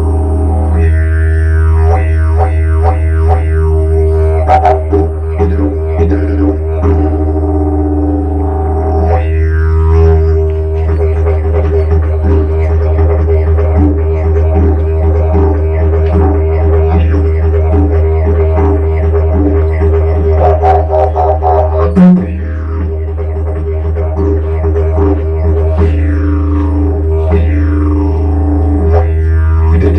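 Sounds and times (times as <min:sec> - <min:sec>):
didgeridoo drone: 0:00.0 - 0:29.9.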